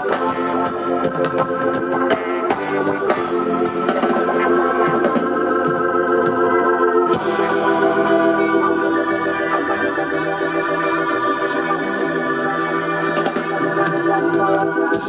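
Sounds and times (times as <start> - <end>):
organ playing held chords: 0.0 - 15.0.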